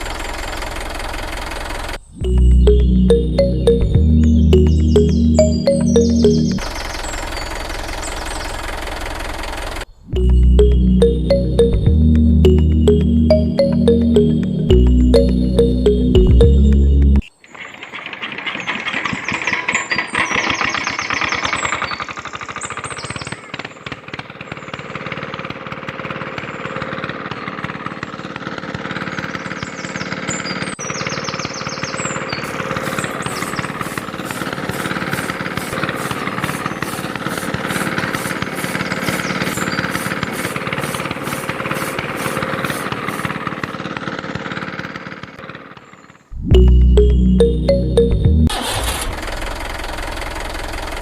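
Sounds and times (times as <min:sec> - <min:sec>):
small motor rattling: 0:00.0 - 0:02.1, 0:06.6 - 0:09.9, 0:17.6 - 0:46.3.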